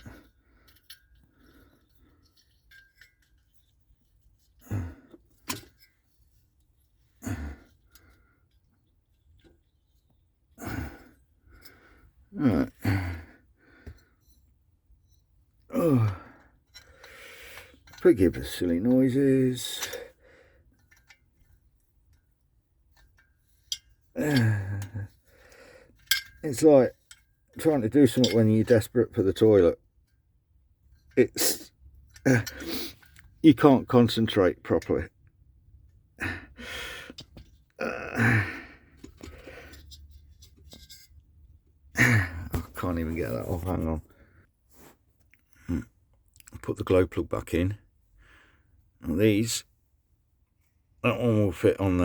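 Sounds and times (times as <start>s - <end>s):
small metal parts clicking: 0.0s - 4.6s, 25.9s - 28.9s
small metal parts clinking: 0.0s - 4.6s, 16.0s - 25.2s, 25.9s - 29.4s
man groaning: 12.3s - 13.3s, 15.7s - 16.3s, 24.2s - 25.0s, 37.8s - 38.6s.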